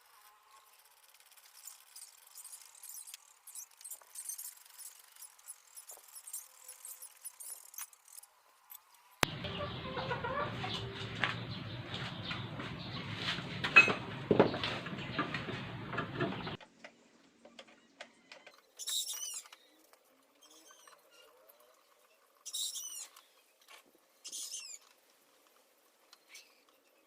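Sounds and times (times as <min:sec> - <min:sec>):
rapid high chirping: 0:01.4 - 0:08.2.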